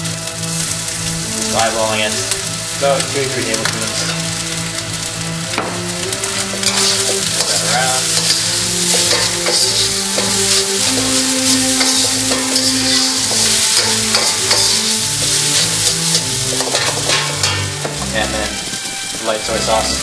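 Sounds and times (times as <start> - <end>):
low tones changing pitch: 0.0 - 20.0
rice sizzling in a wok: 0.0 - 20.0
spatula scraping a wok: 3.5 - 18.2.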